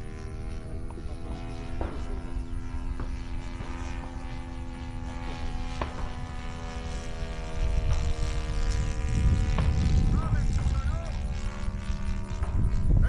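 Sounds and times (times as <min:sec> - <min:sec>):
model airplane motor drone: 0:00.0 - 0:13.0.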